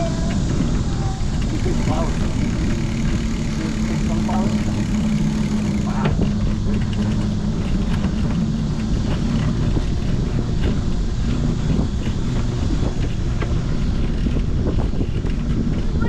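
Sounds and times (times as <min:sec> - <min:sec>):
low riding rumble: 0:00.0 - 0:16.0
small clicks and rattles: 0:00.0 - 0:16.0.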